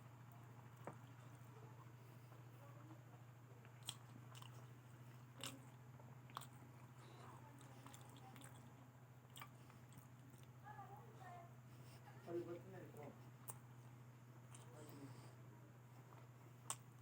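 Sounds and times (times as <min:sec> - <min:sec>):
steady low hum: 0:00.0 - 0:17.0
person chewing: 0:03.6 - 0:10.6, 0:14.4 - 0:14.8, 0:16.1 - 0:17.0.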